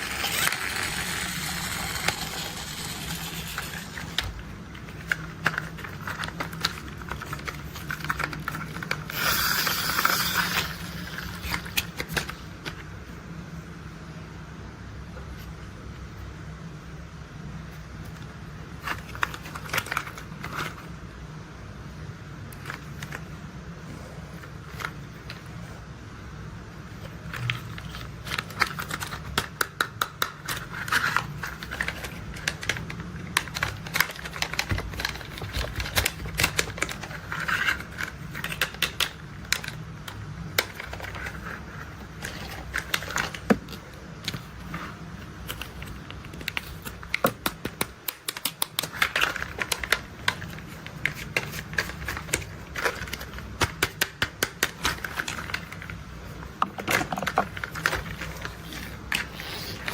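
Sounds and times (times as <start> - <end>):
plastic toy vehicles clicking and rattling: 0.0 - 12.4, 27.0 - 44.8, 45.4 - 56.0, 56.6 - 59.9.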